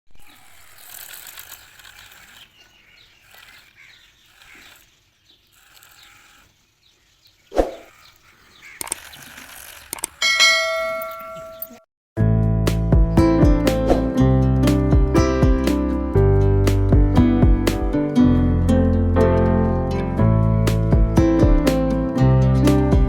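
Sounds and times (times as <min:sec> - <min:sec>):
sharp click: 0:08.8 - 0:10.2
bell-like ding: 0:10.2 - 0:11.8
acoustic guitar music: 0:12.2 - 0:23.0.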